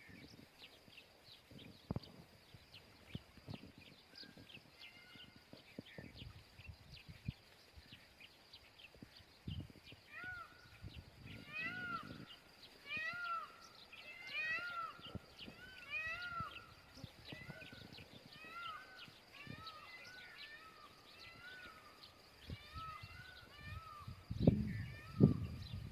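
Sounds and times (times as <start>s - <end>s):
small birds chirping: 0.0s - 25.9s
peafowl calling: 12.9s - 21.9s.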